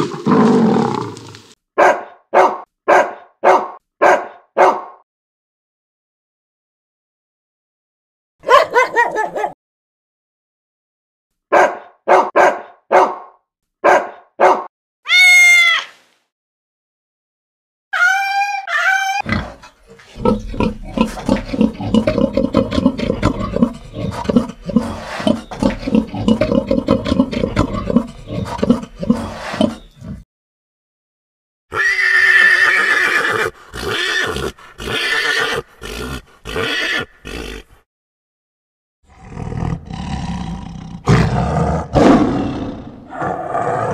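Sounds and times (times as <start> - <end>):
dog barking: 1.8 - 5.0, 8.4 - 9.6, 11.5 - 14.7
pig squealing and grunting: 18.0 - 30.2, 31.7 - 37.8
horse whinnying: 31.7 - 37.7.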